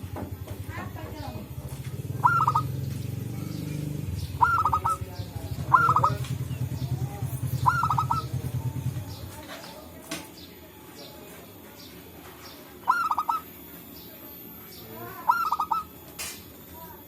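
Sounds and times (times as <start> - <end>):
dove calling staccato notes: 0.8 - 9.3, 12.5 - 13.7, 14.7 - 16.4.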